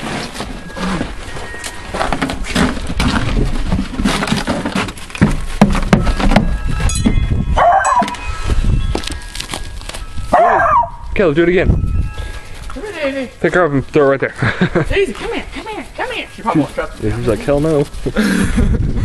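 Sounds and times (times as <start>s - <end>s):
wind on microphone: 6.1s - 12.8s, 17.9s - 19.0s
dog crying: 7.6s - 8.2s, 10.3s - 11.1s.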